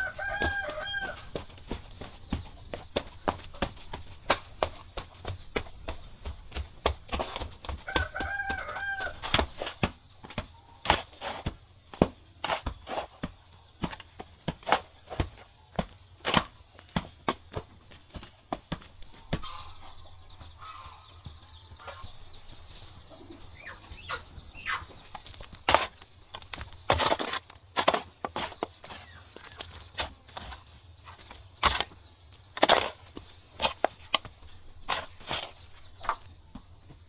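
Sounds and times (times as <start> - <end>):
chicken calling: 0.0 - 2.1, 7.8 - 9.6, 19.2 - 22.2, 22.8 - 25.4
faint bird calls: 18.8 - 27.4.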